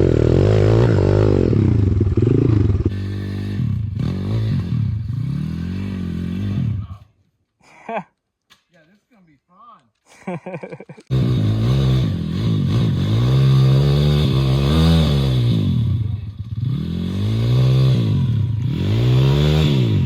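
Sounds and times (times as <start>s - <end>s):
small motorbike engine revving: 0.0s - 6.8s, 11.1s - 20.0s.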